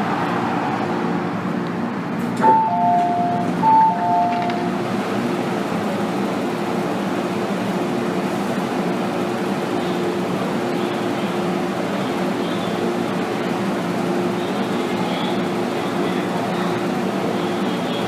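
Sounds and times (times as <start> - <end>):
train cabin noise: 0.0 - 18.0
train door closing chime: 2.4 - 4.8.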